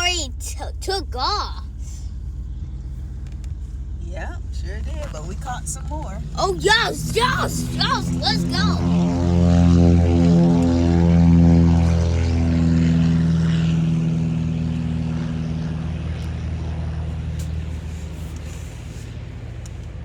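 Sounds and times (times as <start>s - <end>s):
airplane engine taking off: 6.3s - 19.6s.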